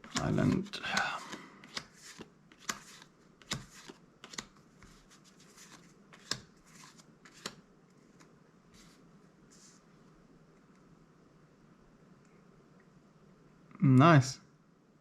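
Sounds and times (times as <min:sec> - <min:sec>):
cards snapping against stack: 0:00.1 - 0:04.5, 0:05.6 - 0:07.6
paper sliding: 0:01.6 - 0:07.6.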